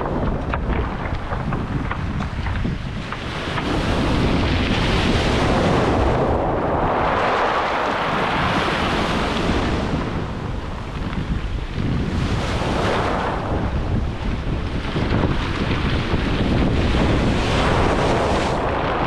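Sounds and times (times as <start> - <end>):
stones clicking and rattling: 0.0 - 3.6
waves washing over stones: 0.0 - 19.0
wind buffeting microphone: 0.0 - 19.0.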